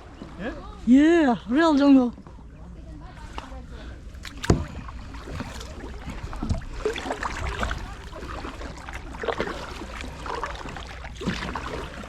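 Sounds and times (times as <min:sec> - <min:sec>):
paddles splashing and knocking: 0:04.1 - 0:12.0.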